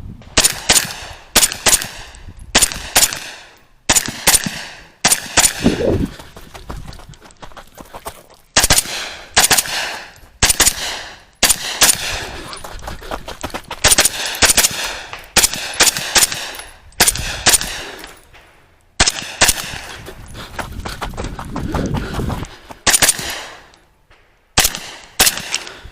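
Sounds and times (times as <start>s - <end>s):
rifle firing rapid shots: 0.4s - 5.9s, 8.6s - 12.3s, 13.8s - 18.0s, 19.0s - 19.9s, 22.8s - 23.6s, 24.6s - 25.8s.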